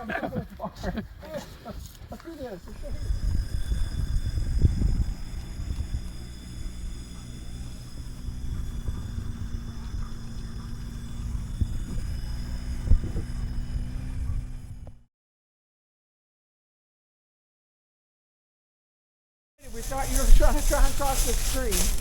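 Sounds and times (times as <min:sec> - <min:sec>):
vehicle engine running at low revs: 0:02.2 - 0:15.1, 0:19.6 - 0:22.0.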